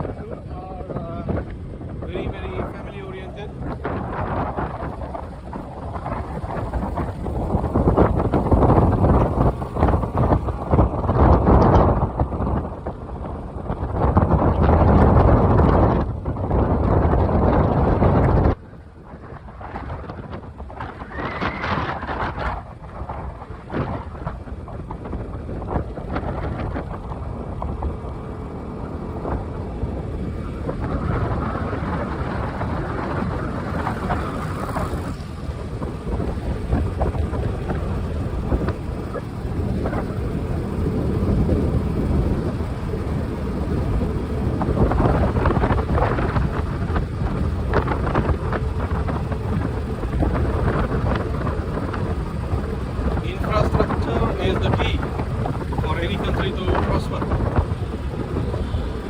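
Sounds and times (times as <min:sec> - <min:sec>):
road and traffic noise: 0:00.0 - 0:59.0
wind buffeting microphone: 0:00.0 - 0:59.0.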